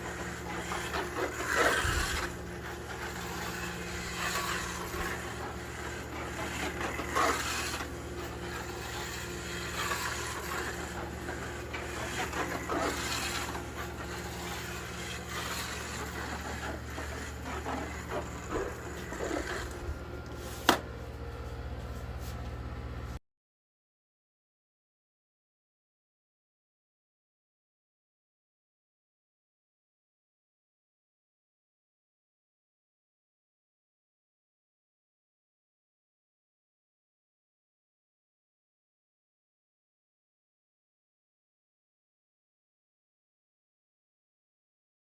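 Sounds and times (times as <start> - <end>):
car scraping on track: 0.0 - 19.9
slot car motor hum: 0.0 - 20.8.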